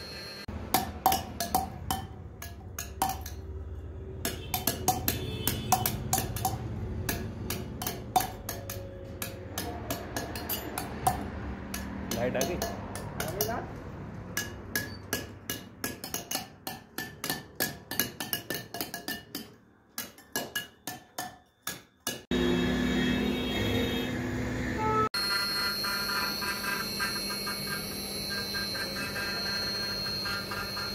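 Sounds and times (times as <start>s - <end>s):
hammer tapping chisel into stone: 4.2s - 13.6s, 14.4s - 22.3s.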